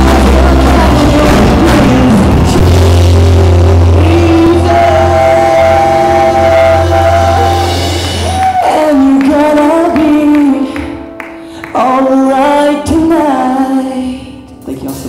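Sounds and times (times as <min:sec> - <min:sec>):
singers singing: 0:00.0 - 0:11.0
live band playing: 0:00.0 - 0:13.8.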